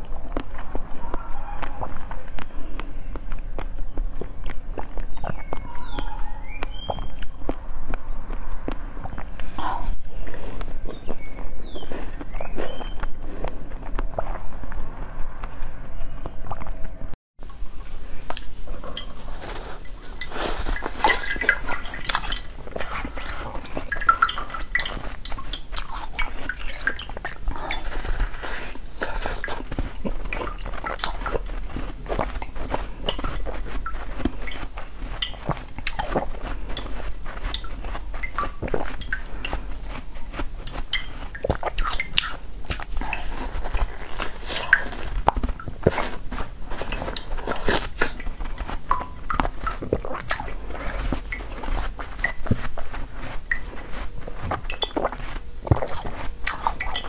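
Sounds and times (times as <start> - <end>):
wet mouth sounds: 0.0 - 17.0, 17.6 - 57.0
crisp crackles of biting: 18.2 - 57.0.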